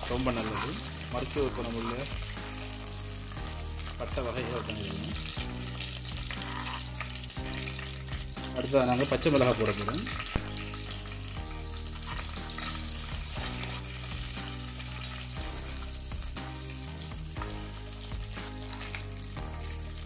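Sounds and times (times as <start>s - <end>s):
chillies sizzling in oil: 0.0s - 20.0s
soft background music: 0.0s - 20.0s
spoon scraping a pot: 6.3s - 6.9s.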